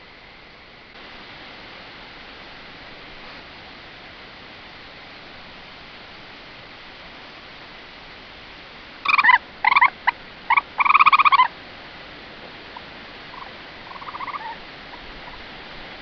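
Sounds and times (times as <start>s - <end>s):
background hiss: 0.0s - 16.0s
wild animal calling: 9.0s - 11.6s, 12.7s - 15.5s.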